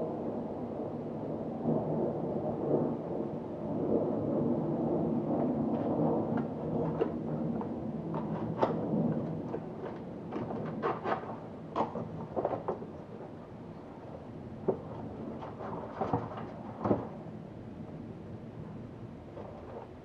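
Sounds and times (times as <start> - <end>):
rumbling handling noise: 5.4 - 17.5, 18.8 - 20.0
sharp clicks and knocks: 6.4 - 13.4.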